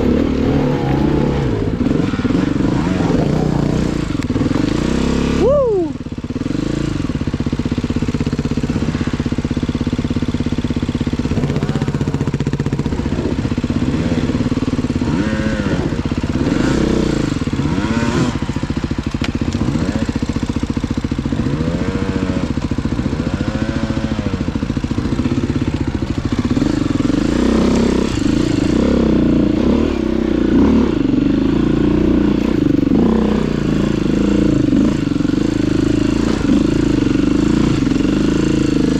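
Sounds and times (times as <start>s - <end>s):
motorcycle engines revving: 0.0s - 38.9s.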